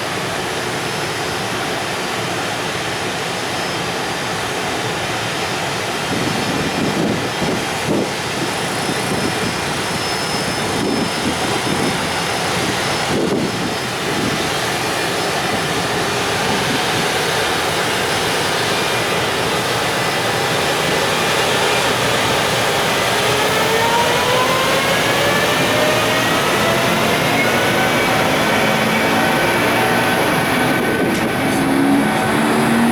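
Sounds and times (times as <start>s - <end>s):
freight train roar: 0.0s - 32.9s
traction motor whine: 8.4s - 32.9s.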